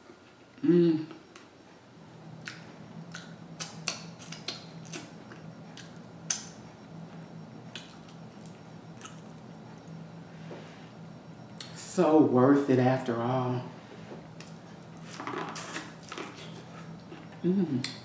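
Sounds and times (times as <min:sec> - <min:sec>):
faint steady hum: 0:00.0 - 0:18.0
chewing and lip smacking: 0:02.4 - 0:06.5, 0:07.7 - 0:09.6, 0:14.3 - 0:18.0.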